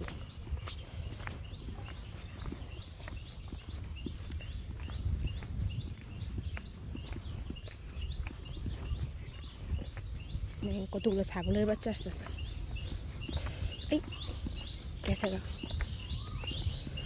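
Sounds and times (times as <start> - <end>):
footsteps on muddy path: 0.0 - 17.0
wind rumbling on microphone: 0.0 - 17.0
high chirping call: 10.5 - 17.0.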